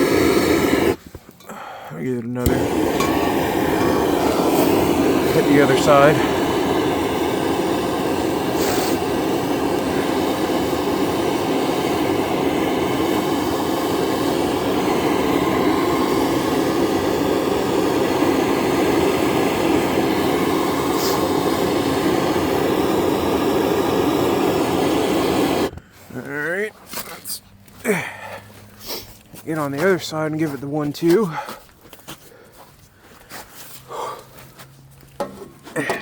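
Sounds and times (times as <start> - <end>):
propane torch roaring: 0.0 - 26.5, 35.0 - 36.0.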